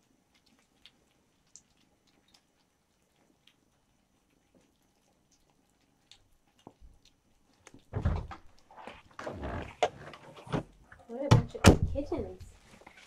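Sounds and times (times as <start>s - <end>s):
kittens chewing and smacking: 0.0s - 11.3s.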